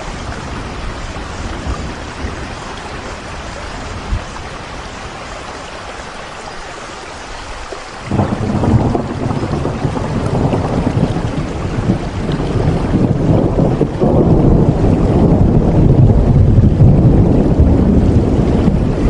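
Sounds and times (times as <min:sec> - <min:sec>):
rain falling: 0:00.0 - 0:19.0
deep rumble: 0:08.1 - 0:19.0.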